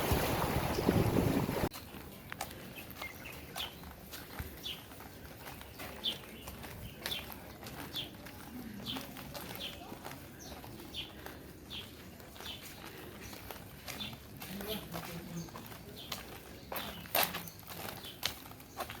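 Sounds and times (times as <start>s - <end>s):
faint outdoor background noise: 0.0s - 19.0s.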